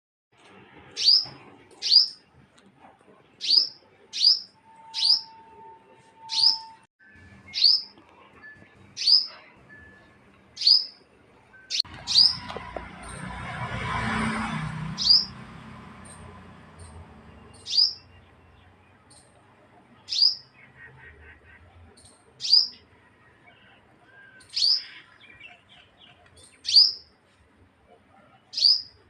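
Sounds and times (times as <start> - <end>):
bird chirping: 1.0 - 2.2, 3.4 - 5.4, 6.0 - 6.8, 7.5 - 8.0, 8.7 - 13.2, 14.9 - 15.4, 16.0 - 27.1, 28.1 - 29.0
rushing noise with low rumble: 11.9 - 17.5.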